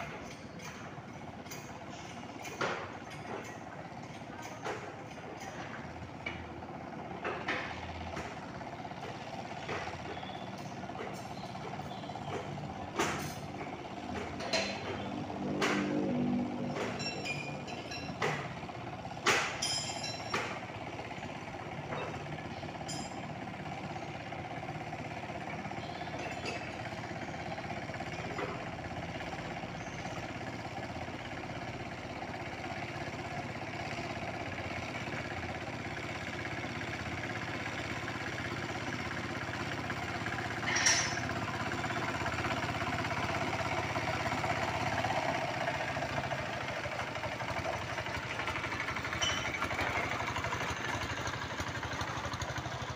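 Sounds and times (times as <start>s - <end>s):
tractor engine running: 0.0s - 52.9s
sharp metal clanks: 16.7s - 18.6s, 19.2s - 20.7s, 40.4s - 41.6s.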